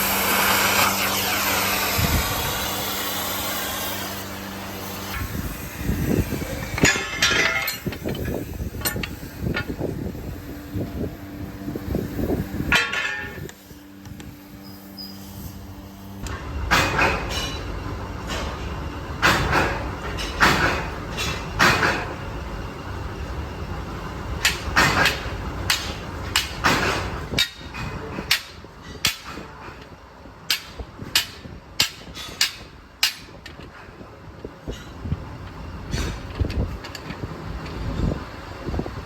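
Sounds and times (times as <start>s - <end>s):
low mechanical rumble: 0.0s - 39.0s
heavy steel pieces clanking: 6.6s - 9.8s, 12.7s - 13.5s.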